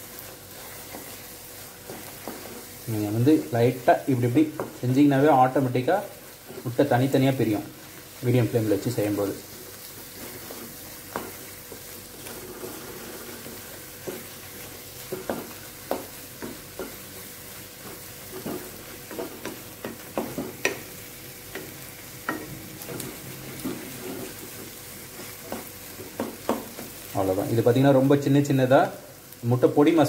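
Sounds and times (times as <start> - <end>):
egg sizzling in a pan: 0.0 - 30.0
spatula scraping and tapping pan: 0.2 - 2.8, 9.8 - 27.1.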